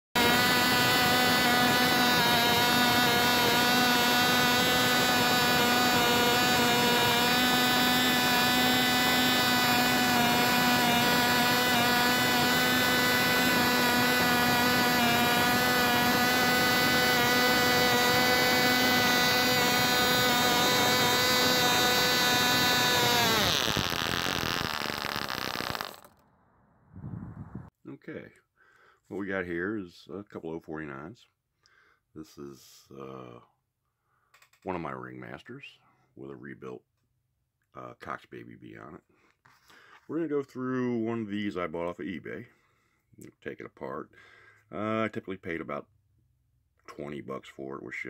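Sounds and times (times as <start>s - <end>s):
model airplane engine whining: 0.2s - 26.2s.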